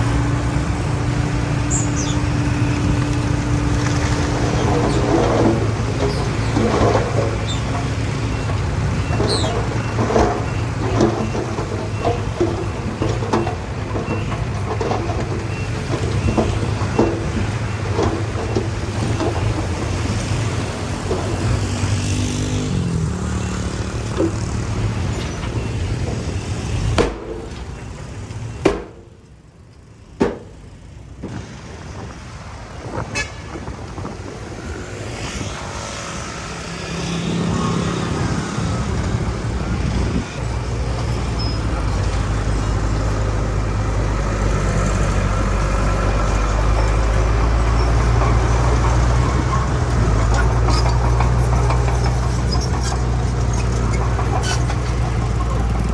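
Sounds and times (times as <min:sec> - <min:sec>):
diesel machinery engine hum: 0:00.0 - 0:55.9
metal clanks and knocks: 0:01.6 - 0:29.3, 0:30.2 - 0:31.4, 0:44.4 - 0:55.9.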